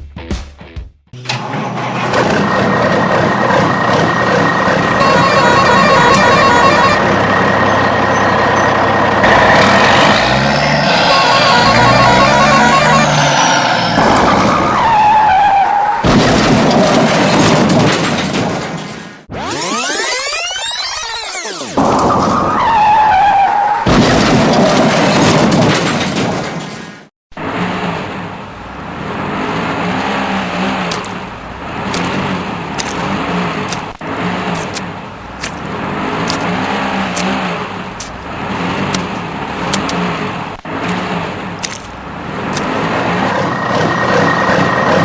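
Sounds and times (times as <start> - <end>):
toy engine running sound: 5.0 - 7.0
sharp clicks: 30.9 - 31.2, 31.9 - 35.6, 38.9 - 42.7.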